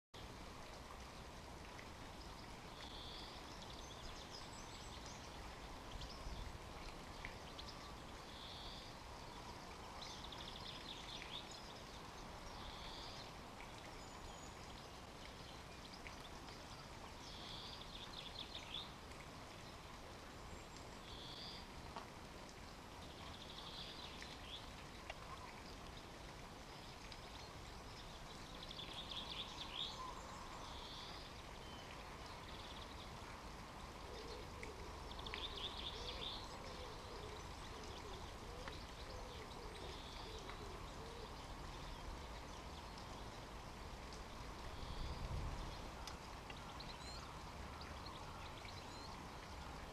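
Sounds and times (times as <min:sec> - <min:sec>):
steady low background noise: 0:00.2 - 0:49.9
songbirds calling: 0:01.7 - 0:21.8, 0:23.0 - 0:49.9.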